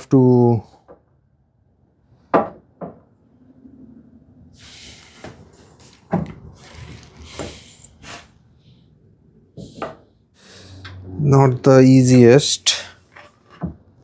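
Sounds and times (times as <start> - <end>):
wood scraping and rubbing: 4.7 - 8.3, 9.6 - 14.0.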